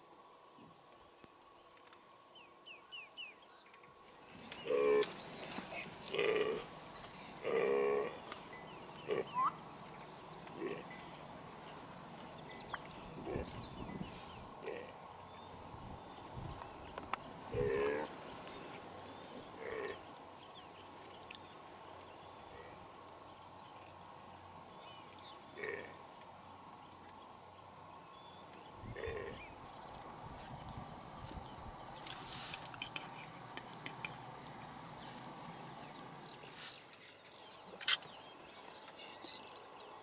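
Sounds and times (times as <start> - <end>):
high-pitched insect buzz: 0.0 - 14.9
short animal calls: 9.0 - 9.7.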